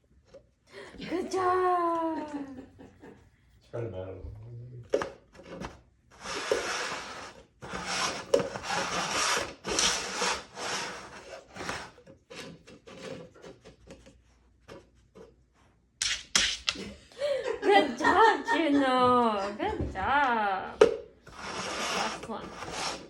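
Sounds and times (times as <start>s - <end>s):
scraping on hard surface: 5.4s - 15.4s, 21.2s - 23.0s.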